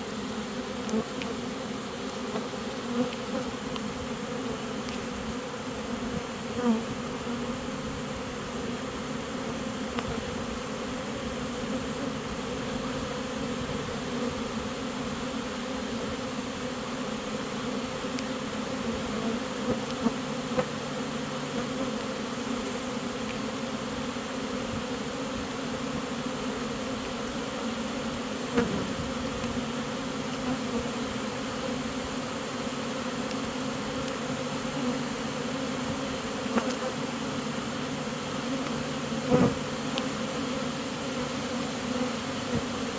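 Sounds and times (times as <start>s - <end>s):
bee swarm buzzing: 0.0s - 42.9s.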